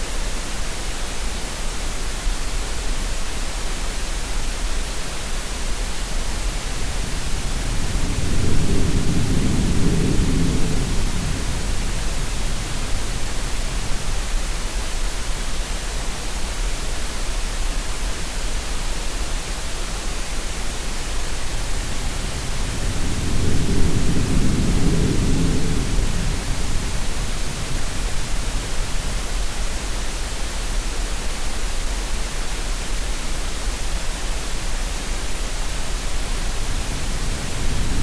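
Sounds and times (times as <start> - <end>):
steady noise hiss: 0.0 - 38.0.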